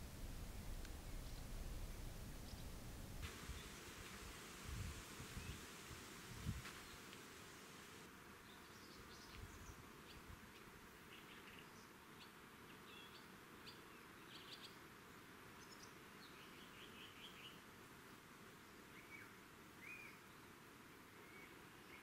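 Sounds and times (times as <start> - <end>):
low steady hiss: 0.0 - 22.0
faint bird chirps: 18.8 - 20.5, 21.2 - 22.0.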